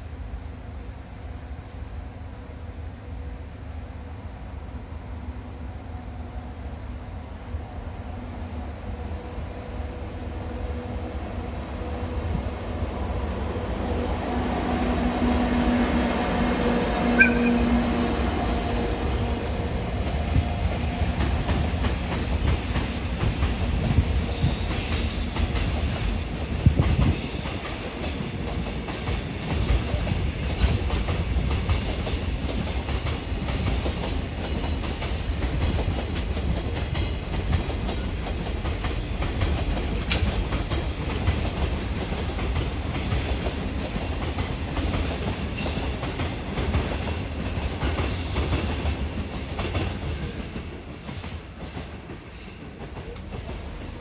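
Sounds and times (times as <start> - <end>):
freight train rumbling past: 0.0 - 54.0
wheels clicking over rail joints: 24.7 - 54.0.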